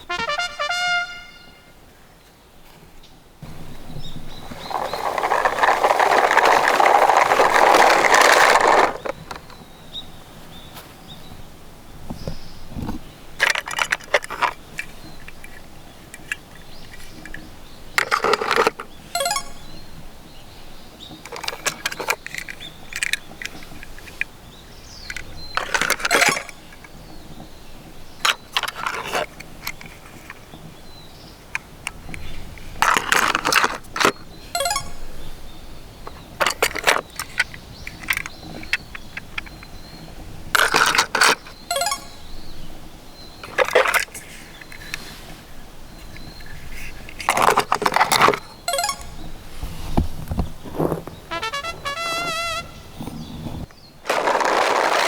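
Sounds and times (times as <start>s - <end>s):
toy cars clicking: 3.4s - 9.6s, 13.4s - 19.7s, 21.2s - 27.4s, 28.1s - 30.7s, 31.4s - 35.2s, 36.0s - 42.4s, 43.3s - 49.4s.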